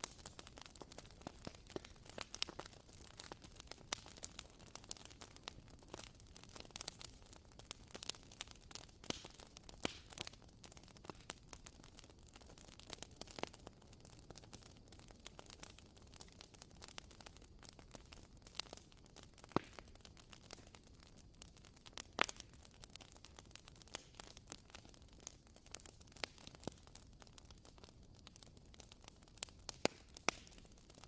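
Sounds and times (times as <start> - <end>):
candle wick crackling: 0.0 - 7.2.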